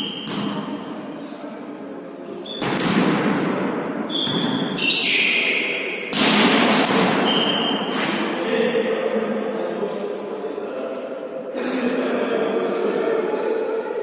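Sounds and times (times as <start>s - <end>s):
ball strikes echoing in hall: 0.0s - 9.2s
short high squeaks: 4.1s - 5.5s.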